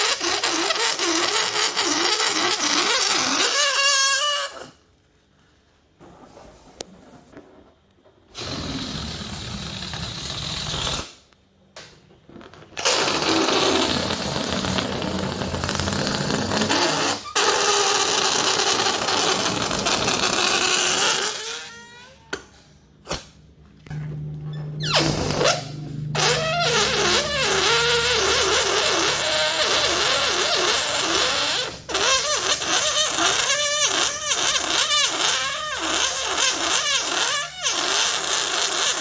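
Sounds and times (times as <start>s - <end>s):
balloon neck squealing: 0.0s - 4.8s, 12.8s - 23.4s, 24.5s - 39.0s
air rushing from balloons: 8.3s - 11.3s, 12.8s - 21.8s, 24.8s - 39.0s.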